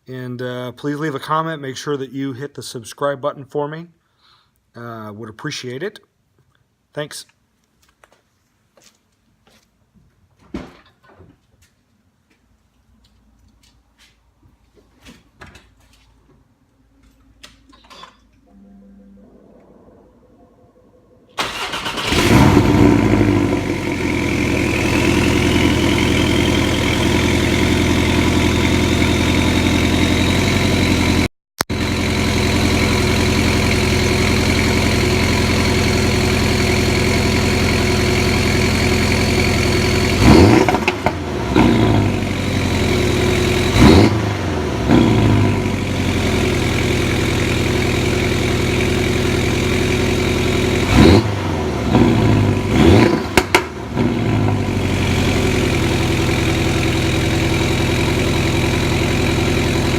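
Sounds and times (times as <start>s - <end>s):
engine throttle blips: 18.4s - 59.9s
engine whine: 18.4s - 59.9s
car engine cold start idling: 21.4s - 40.2s.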